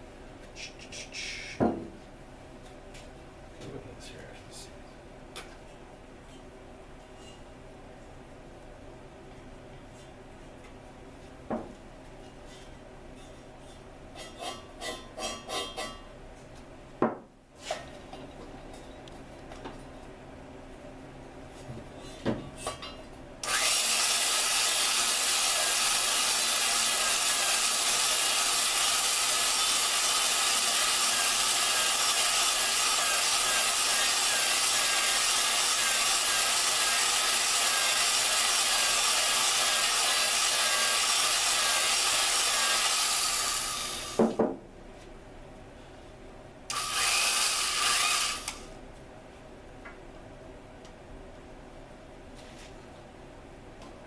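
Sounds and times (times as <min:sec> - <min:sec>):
drill grinding valve: 0:23.4 - 0:44.2, 0:46.7 - 0:48.6.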